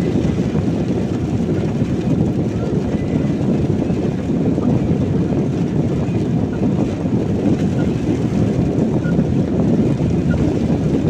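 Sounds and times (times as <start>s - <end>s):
car tyre and road noise: 0.0s - 11.0s.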